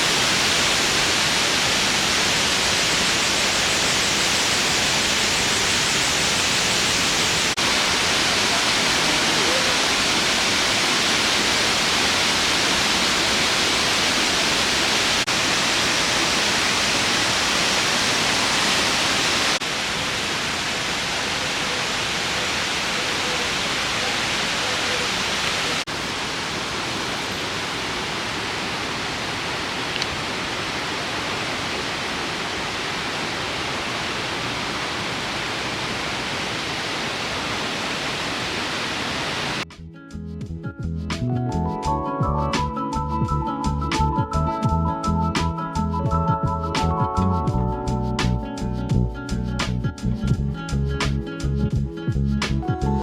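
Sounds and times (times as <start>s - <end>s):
waterfall roaring: 0.0s - 39.6s.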